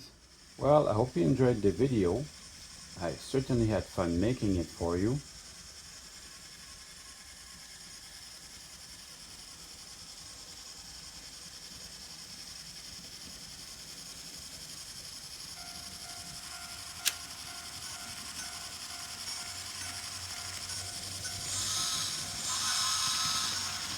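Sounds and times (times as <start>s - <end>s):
model train motor whirring: 0.0s - 23.9s
faint hum: 15.3s - 23.9s
sharp click: 16.8s - 17.4s.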